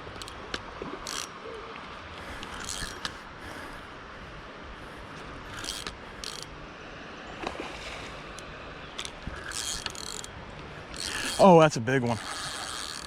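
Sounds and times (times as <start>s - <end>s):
fishing reel clicking: 0.1s - 0.4s, 1.0s - 1.3s, 2.3s - 3.2s, 5.5s - 6.5s, 9.0s - 10.3s, 10.9s - 11.5s, 12.1s - 13.0s.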